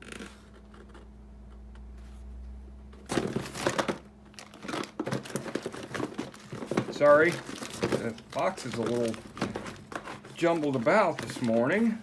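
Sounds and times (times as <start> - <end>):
low steady hum: 0.0 - 12.0
packing paper crinkling: 3.1 - 12.0.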